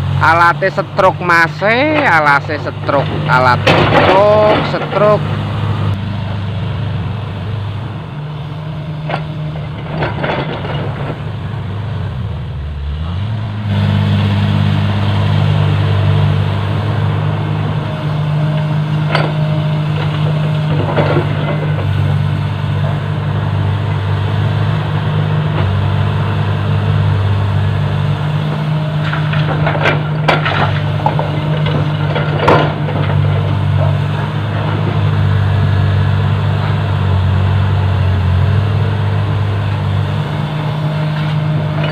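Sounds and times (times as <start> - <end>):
heavy diesel engine running: 0.0 - 41.9
knocks and clanks of earthmoving: 1.6 - 5.4, 9.0 - 11.5, 18.5 - 24.1, 28.4 - 35.2, 41.0 - 41.9.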